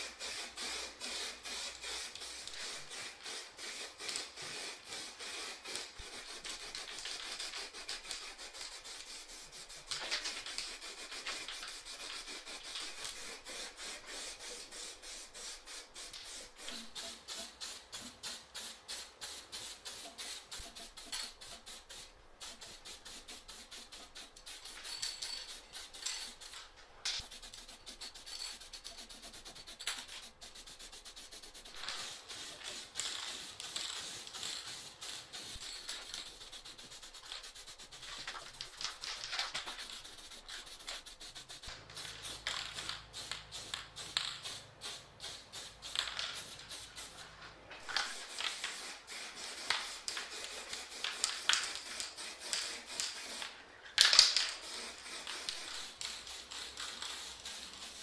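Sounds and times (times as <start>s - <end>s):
hand scraping on a bike part: 27.2s - 44.6s.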